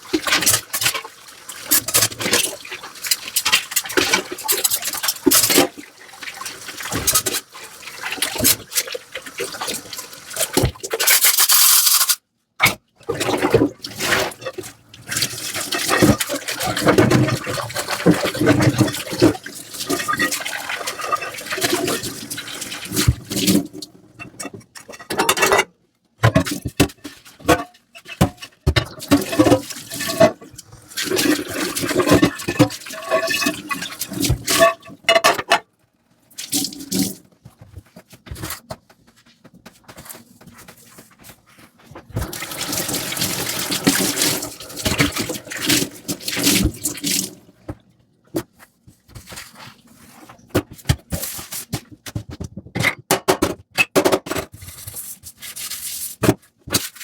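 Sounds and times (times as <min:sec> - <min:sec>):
running water: 0:00.0 - 0:10.8, 0:13.8 - 0:23.8, 0:42.1 - 0:47.8
water splashing and pouring: 0:00.0 - 0:12.0, 0:13.1 - 0:23.8, 0:28.9 - 0:34.9, 0:36.3 - 0:37.3, 0:42.2 - 0:47.7.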